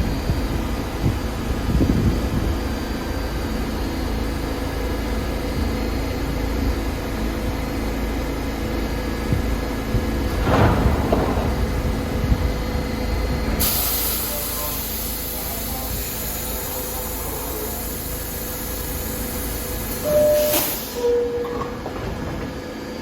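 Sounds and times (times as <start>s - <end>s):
loud hiss of air: 13.6s - 21.1s.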